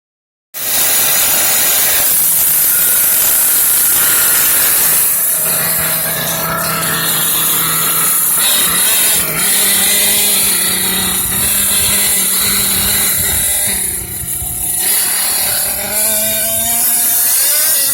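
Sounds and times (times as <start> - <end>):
buzzy nitro engine: 0.6 - 17.9.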